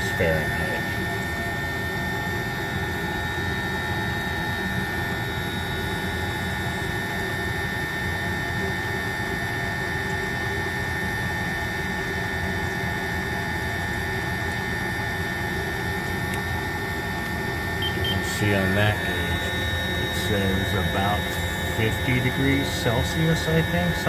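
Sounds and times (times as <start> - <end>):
thin steady whine: 0.0 - 9.2, 14.0 - 24.0
heater rushing noise: 17.8 - 24.0.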